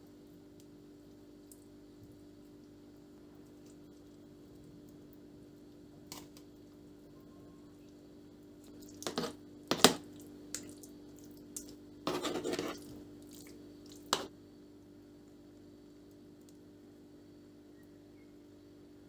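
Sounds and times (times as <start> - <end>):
rustle or scrape: 12.1 - 12.9.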